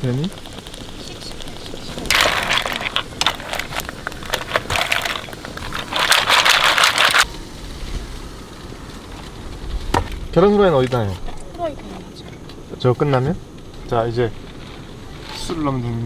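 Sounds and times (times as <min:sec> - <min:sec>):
mussel shells scraping in a pot: 0:00.0 - 0:08.1.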